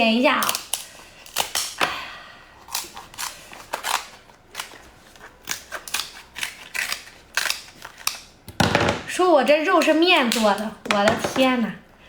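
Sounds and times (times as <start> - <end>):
scissors cutting crab shell: 0.3 - 1.9, 2.7 - 8.3.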